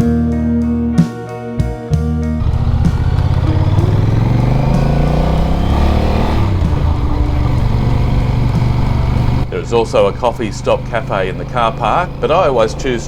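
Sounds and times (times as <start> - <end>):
motorcycle engine running: 2.4 - 13.0.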